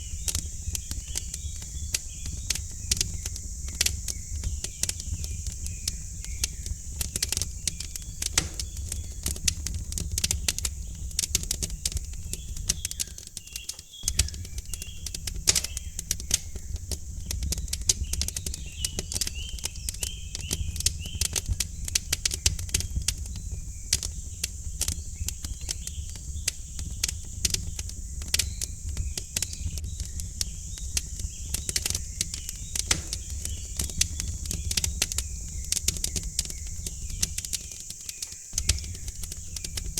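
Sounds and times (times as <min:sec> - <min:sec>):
faint bird chirps: 0:00.0 - 0:39.9
wood fire crackling and popping: 0:00.0 - 0:39.9.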